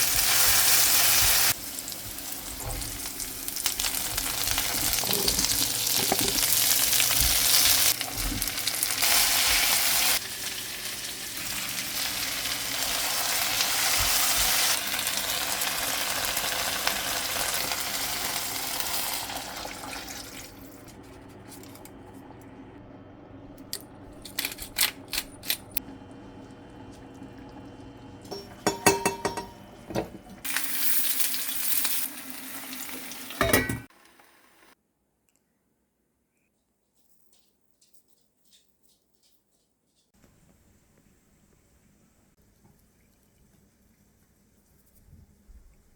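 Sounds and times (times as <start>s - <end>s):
soup sizzling in a pot: 0.0s - 20.4s, 30.4s - 34.8s.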